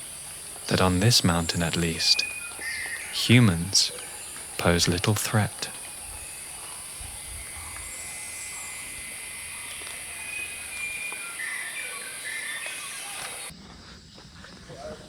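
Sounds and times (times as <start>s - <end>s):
high-pitched insect drone: 0.0s - 14.2s
faint bird whistles: 2.2s - 3.2s, 5.8s - 13.5s.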